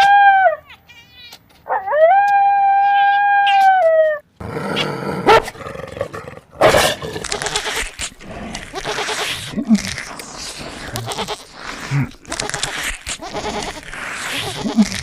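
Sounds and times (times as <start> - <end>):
dog howling: 1.7 - 4.2
rough noisy animal sound: 4.4 - 15.0.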